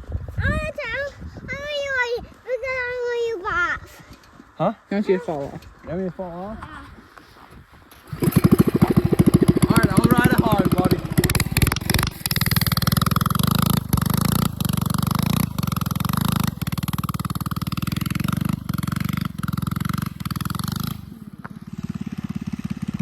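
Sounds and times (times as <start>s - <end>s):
mini bike engine at high throttle: 7.8s - 23.0s.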